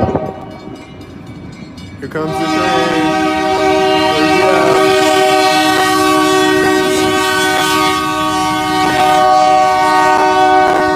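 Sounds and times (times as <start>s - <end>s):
passing train clicks: 0.0s - 10.9s
train horn blast: 2.2s - 10.9s.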